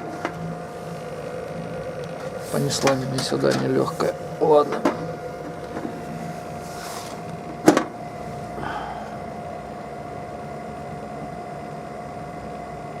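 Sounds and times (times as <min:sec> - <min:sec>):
electrical hum with whine: 0:00.0 - 0:13.0.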